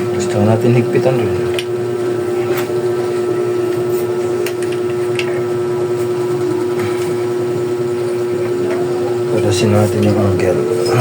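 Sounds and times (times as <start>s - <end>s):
steady hum: 0.0s - 11.0s
tools tapping bicycle parts: 3.8s - 5.4s.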